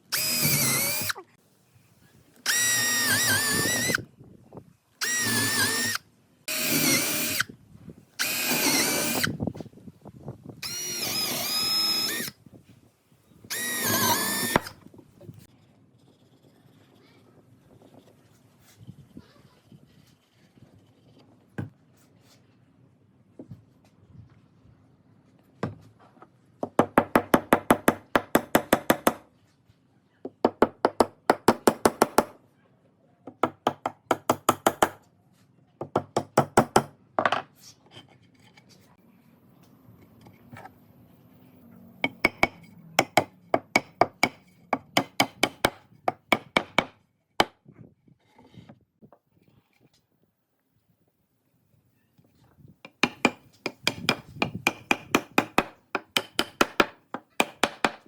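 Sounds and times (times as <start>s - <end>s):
rapid sharp knocks: 53.0s - 58.0s.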